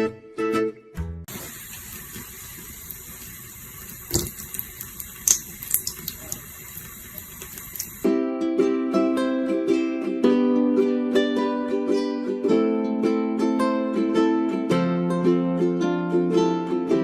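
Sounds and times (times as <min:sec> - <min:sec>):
plucked guitar tune: 0:00.0 - 0:01.3, 0:08.0 - 0:17.0
water running from a tap: 0:01.3 - 0:08.1.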